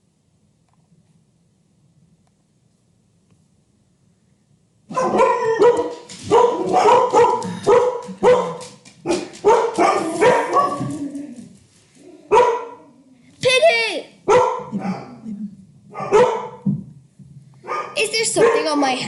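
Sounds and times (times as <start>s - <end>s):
dog barking: 4.9s - 10.9s, 12.3s - 12.8s, 14.2s - 15.2s, 15.9s - 16.7s, 17.6s - 18.9s.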